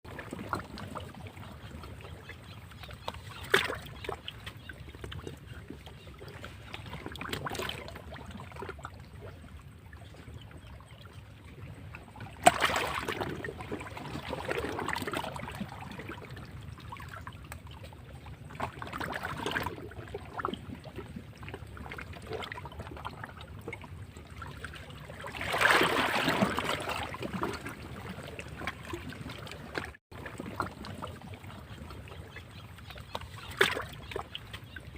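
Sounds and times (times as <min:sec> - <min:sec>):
waves breaking against rocks: 0:12.4 - 0:16.2, 0:25.2 - 0:31.2.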